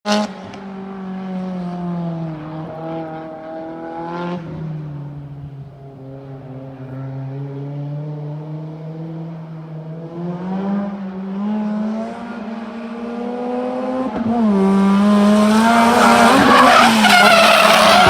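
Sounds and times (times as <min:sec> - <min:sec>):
car engine revving high: 0:07.4 - 0:18.0.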